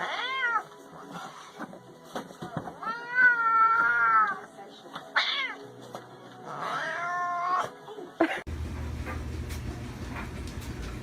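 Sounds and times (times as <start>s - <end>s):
cat meowing: 0.0s - 0.7s, 2.8s - 4.4s, 5.1s - 5.6s, 6.5s - 7.7s
steady low hum: 8.5s - 11.0s.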